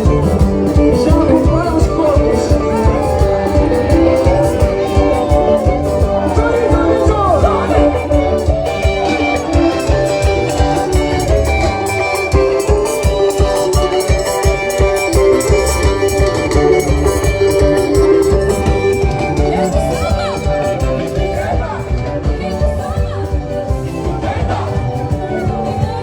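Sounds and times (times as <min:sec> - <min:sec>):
drum kit beat: 0:00.0 - 0:26.0
guitar: 0:00.0 - 0:26.0
melodic instrument lines: 0:00.0 - 0:26.0.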